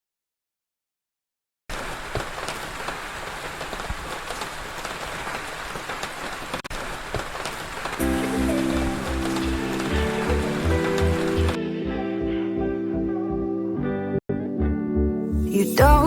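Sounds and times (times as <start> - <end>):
rain falling: 1.7 - 11.6
raindrops ticking: 1.7 - 11.6
music with steady beat: 8.0 - 13.8.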